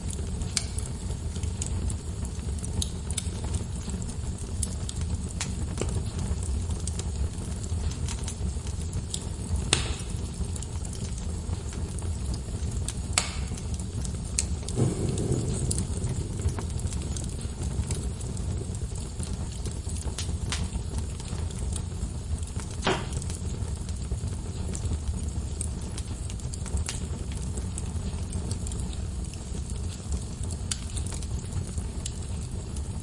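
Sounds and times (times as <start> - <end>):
burning wood popping: 0.0 - 33.0
log fire crackling: 0.0 - 33.0
steady low rumble: 13.5 - 22.6.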